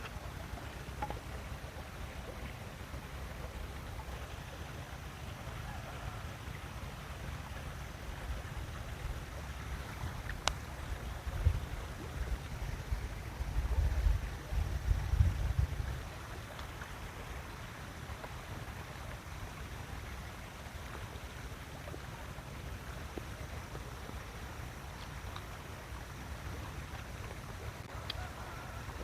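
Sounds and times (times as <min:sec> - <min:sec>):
wind rumble on microphone: 0:08.0 - 0:17.3.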